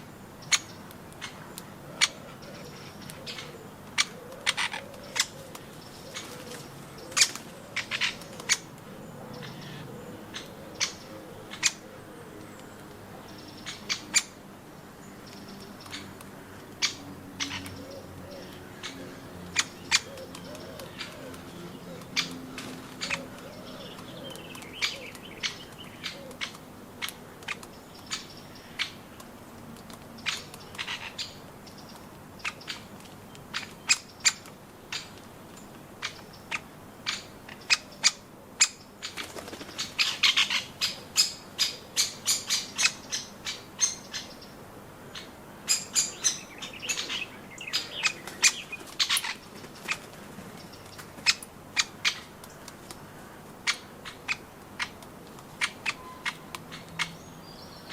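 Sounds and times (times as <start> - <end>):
wing flutters: 39.1 - 40.2.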